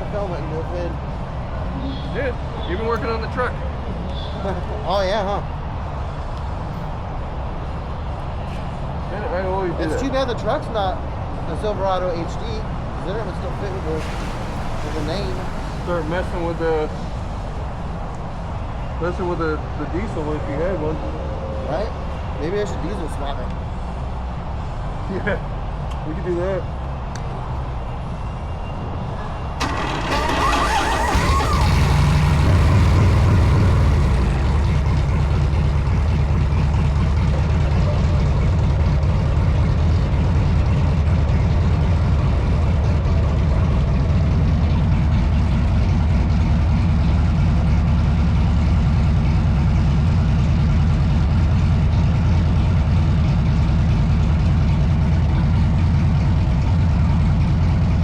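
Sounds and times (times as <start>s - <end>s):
motorcycle engine running: 29.7s - 58.0s.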